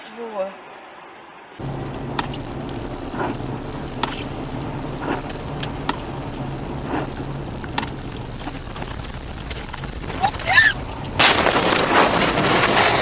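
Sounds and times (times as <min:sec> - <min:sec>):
turn signal ticking: 0:01.6 - 0:11.2
car engine running: 0:01.6 - 0:13.0.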